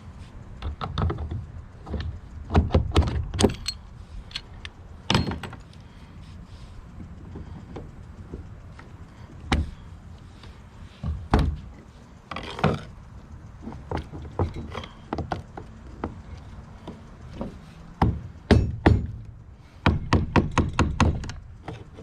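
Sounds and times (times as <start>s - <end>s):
tools knocking and clanking: 0.6s - 5.7s, 13.6s - 22.0s.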